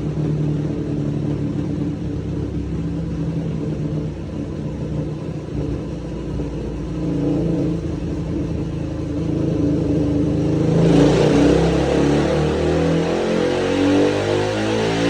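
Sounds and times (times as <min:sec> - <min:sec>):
motorcycle engine revving on dyno: 0:05.4 - 0:15.0.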